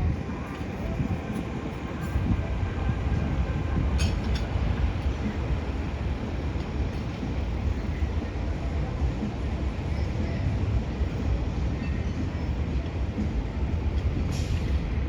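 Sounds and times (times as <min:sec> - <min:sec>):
city ambience rumble: 0:00.0 - 0:15.0.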